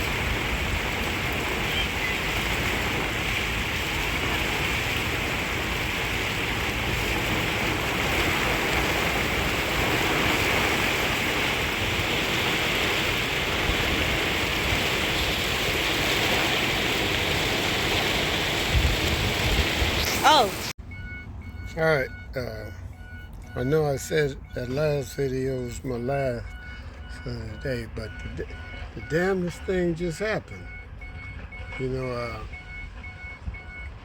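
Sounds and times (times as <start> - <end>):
rain falling steadily: 0.0 - 20.8.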